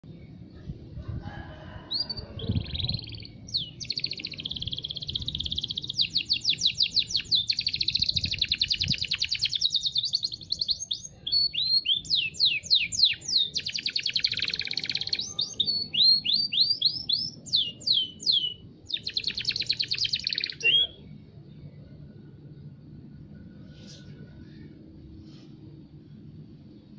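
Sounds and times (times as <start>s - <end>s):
canary singing trills: 1.9s - 21.1s.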